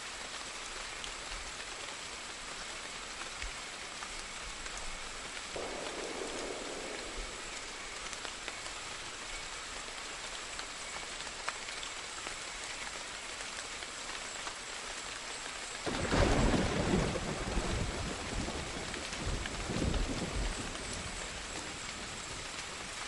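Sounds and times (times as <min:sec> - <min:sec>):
rain falling: 0:00.0 - 0:23.0
thunder rumbling: 0:05.5 - 0:09.1, 0:15.9 - 0:21.2.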